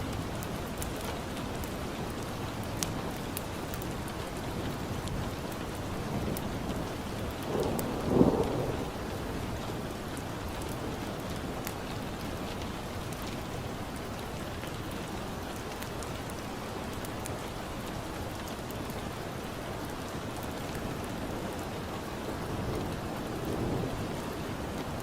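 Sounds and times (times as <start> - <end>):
fire crackling: 0.0 - 8.4, 9.0 - 22.0
steady rain: 0.0 - 25.0
low thunder rumble: 7.4 - 9.9.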